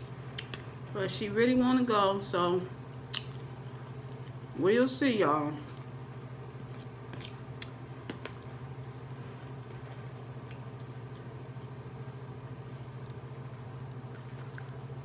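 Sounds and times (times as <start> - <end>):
chewing and mouth sounds: 2.9 - 4.5, 5.7 - 15.0.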